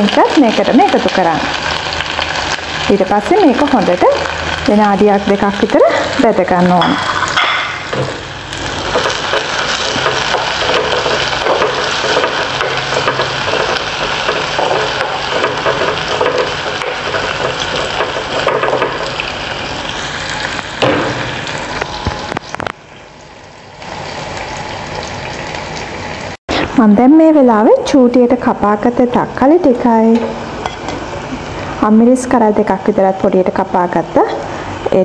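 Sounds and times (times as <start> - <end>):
vegetables sizzling in hot oil: 0.0 - 26.4.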